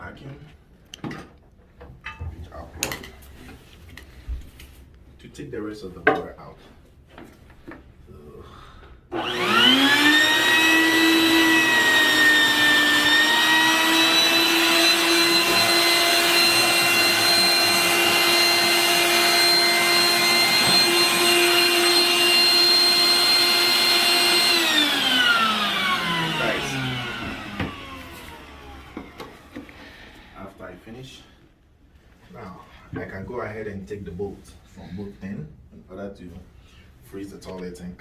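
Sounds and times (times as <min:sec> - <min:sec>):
vacuum cleaner motor whine: 0:09.1 - 0:29.9.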